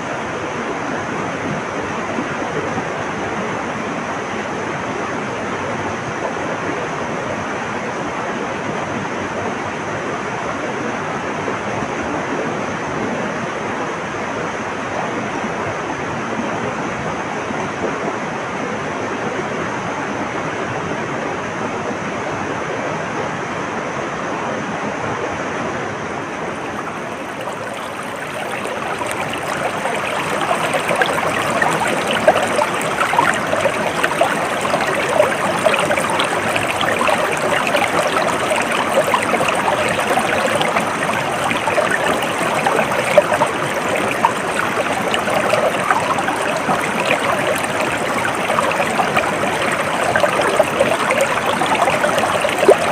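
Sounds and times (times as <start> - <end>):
stream flowing over rocks: 26.2 - 52.9.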